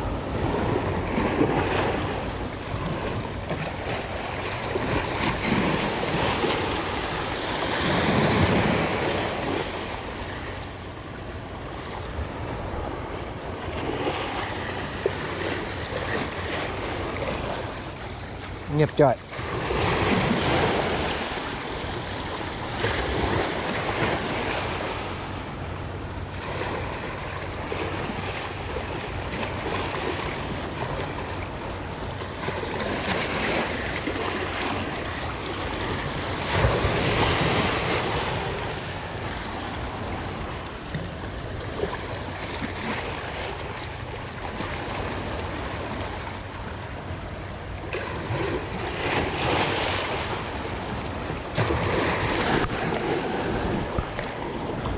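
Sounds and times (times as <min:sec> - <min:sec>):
sea waves washing on shore: 0:00.0 - 0:54.9
wind buffeting microphone: 0:50.2 - 0:54.9.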